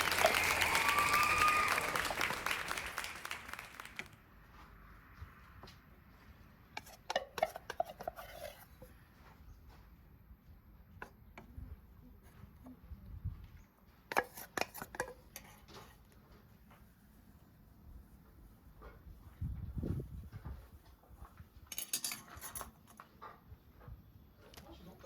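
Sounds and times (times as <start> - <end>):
applause: 0.0 - 4.2
dishes and utensils clinking: 21.7 - 22.9.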